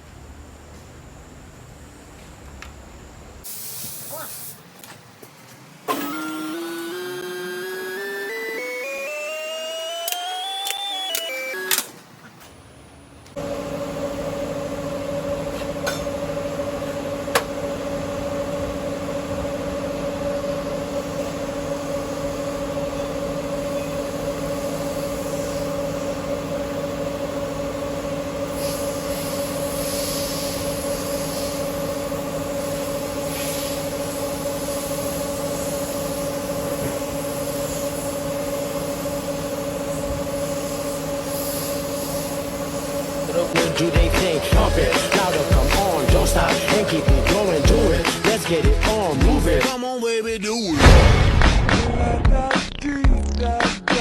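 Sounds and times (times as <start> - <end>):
car driving drone: 43.2 - 48.1.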